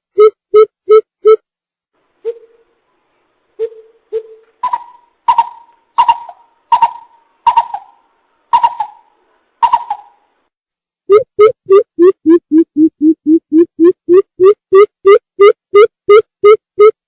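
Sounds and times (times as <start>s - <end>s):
bird deep hollow hoots: 3.6s - 8.0s, 8.6s - 10.2s.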